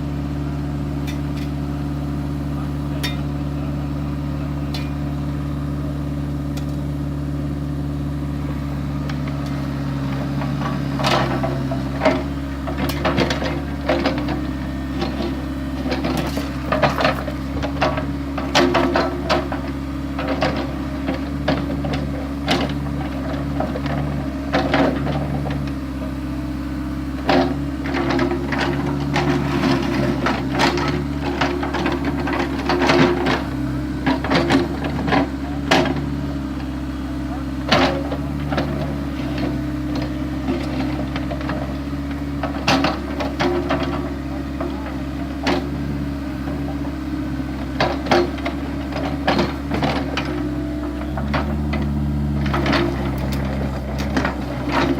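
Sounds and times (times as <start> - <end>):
excavator diesel engine running: 0.0 - 54.9
bucket clanking and scraping: 27.2 - 36.6, 37.3 - 54.9.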